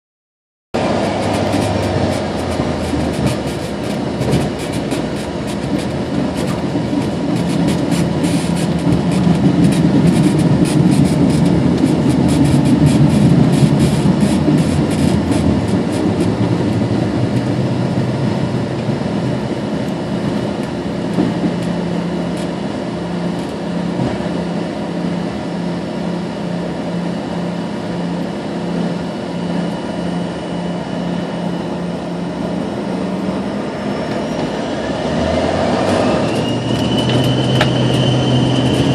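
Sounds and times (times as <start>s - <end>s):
wheels bumping on runway: 0.8s - 22.6s
jet engines roaring: 0.8s - 38.9s.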